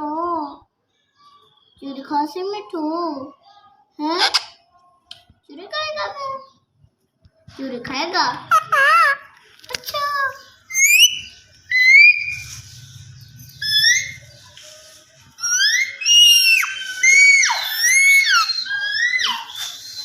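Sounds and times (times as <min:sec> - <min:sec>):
parakeet whistling: 0:10.7 - 0:12.7, 0:13.6 - 0:14.3, 0:15.4 - 0:20.0.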